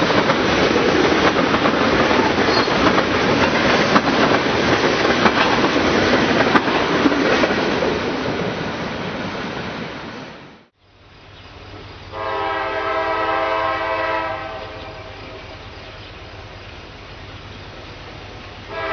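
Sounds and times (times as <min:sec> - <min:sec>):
clickety-clack over rail joints: 0:00.0 - 0:10.0
freight train wheels rumbling: 0:00.0 - 0:18.9.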